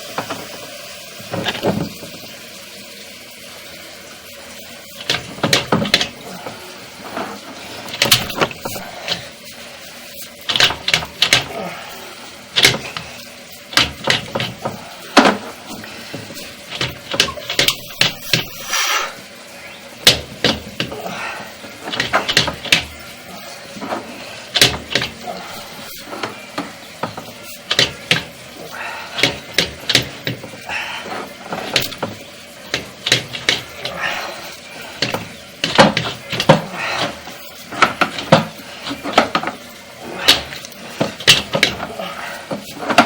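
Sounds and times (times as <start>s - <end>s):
rustling handling noise: 4.2s - 11.7s, 20.0s - 43.0s
sharp knocks and clacks: 4.9s - 6.2s, 7.9s - 9.3s, 10.5s - 11.6s, 12.6s - 13.1s, 13.7s - 18.7s, 20.0s - 21.0s, 21.8s - 23.0s, 24.6s - 28.5s, 29.2s - 34.1s, 35.0s - 39.6s, 40.3s - 43.0s.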